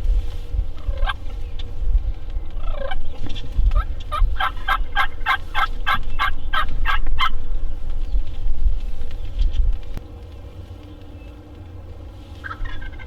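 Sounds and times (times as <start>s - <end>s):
low rumble: 0.0s - 13.0s
turkey yelping: 0.8s - 1.2s, 2.6s - 3.1s, 3.7s - 7.4s, 12.4s - 13.0s.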